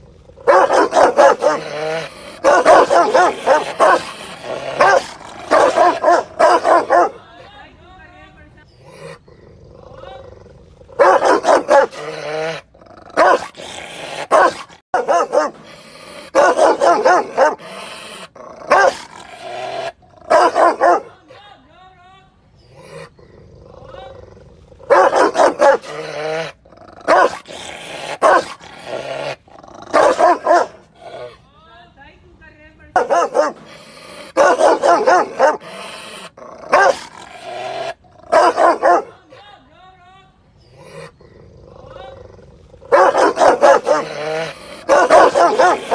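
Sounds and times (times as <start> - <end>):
dog barking angrily: 0.3 - 7.2, 10.9 - 21.1, 24.8 - 31.0, 32.9 - 39.2, 42.8 - 45.9.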